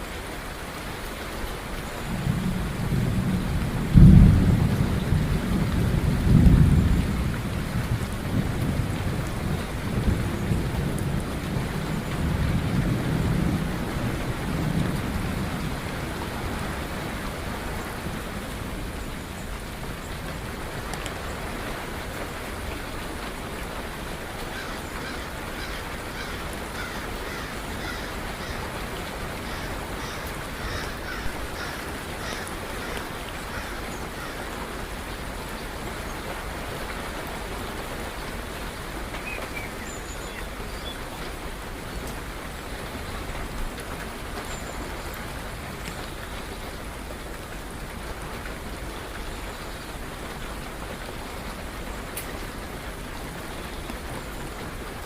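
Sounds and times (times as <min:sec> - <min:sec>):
rain falling: 0:00.0 - 0:55.0
birds calling: 0:24.5 - 0:34.7.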